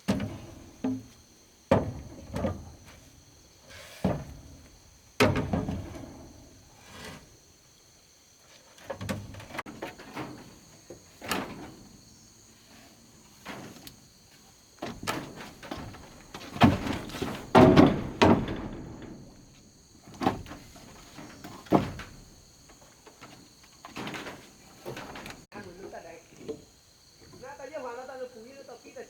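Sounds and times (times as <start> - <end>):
bamboo and wood knocking: 14.8 - 19.3.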